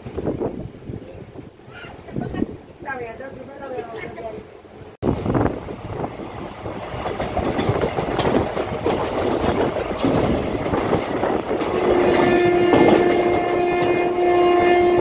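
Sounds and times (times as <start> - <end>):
train rumbling on rails: 0.0 - 15.0
wheels clattering over rail joints: 6.6 - 14.2
train horn: 11.7 - 15.0.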